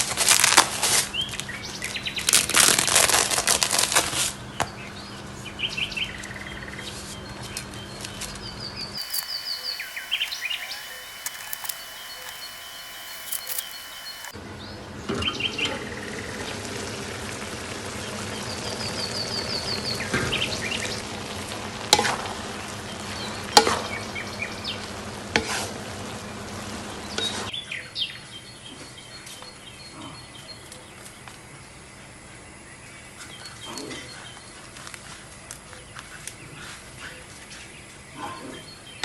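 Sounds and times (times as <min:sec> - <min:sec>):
faint bird chirps: 0:09.0 - 0:14.3
food sizzling in a frying pan: 0:16.2 - 0:27.5.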